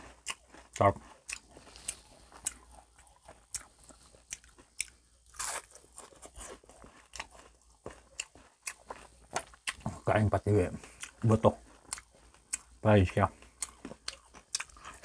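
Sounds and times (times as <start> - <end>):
person chewing crispy fish: 0.0 - 15.0.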